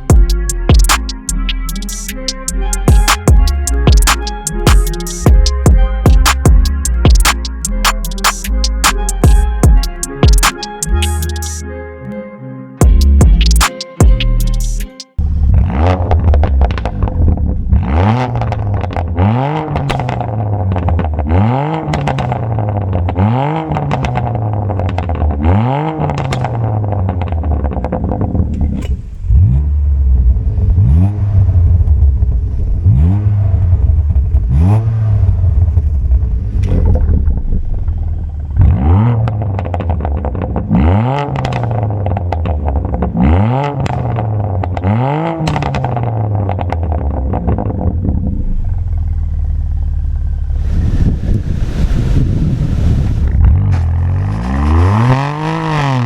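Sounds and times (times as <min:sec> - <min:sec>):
exhaust cracks: 0:00.0 - 0:11.6, 0:14.4 - 0:56.0
car engine revving: 0:15.2 - 0:56.0.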